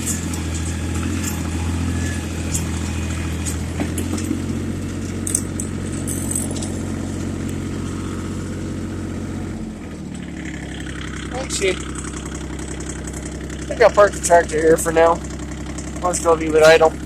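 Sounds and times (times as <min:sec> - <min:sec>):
light metallic clinks and rattles: 0:00.0 - 0:07.5
tractor diesel engine running: 0:00.0 - 0:17.0.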